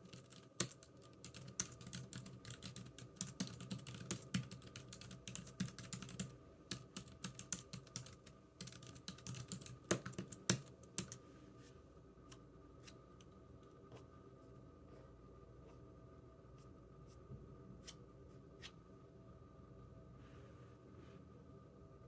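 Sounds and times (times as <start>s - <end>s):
computer keyboard typing: 0.0s - 11.2s.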